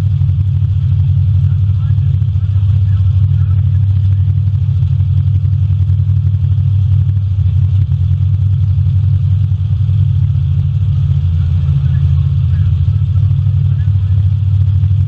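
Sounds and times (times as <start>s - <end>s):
car engines rumbling: 0.0s - 15.0s.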